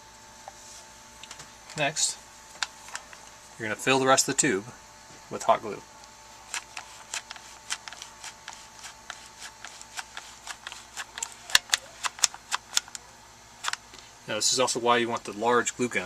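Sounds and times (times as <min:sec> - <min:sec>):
glue gun trigger clicking: 0:10.0 - 0:13.0.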